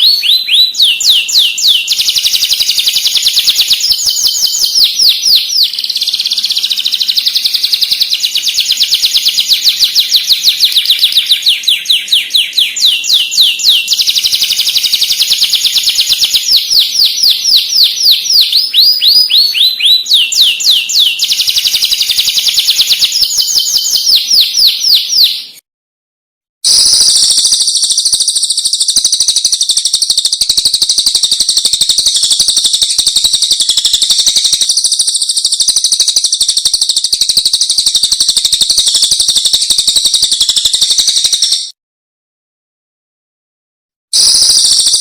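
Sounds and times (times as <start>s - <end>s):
songbird song: 0.0s - 25.6s, 26.7s - 41.8s.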